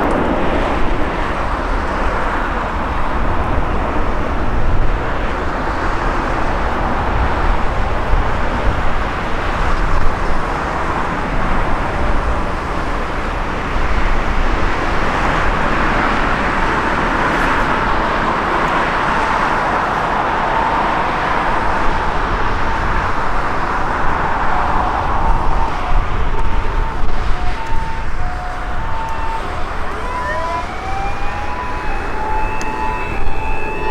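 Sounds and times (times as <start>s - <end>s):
distant jet airliner engine: 0.0s - 33.9s
wind rumble on microphone: 0.0s - 33.9s
rising pitched glides: 24.3s - 33.9s.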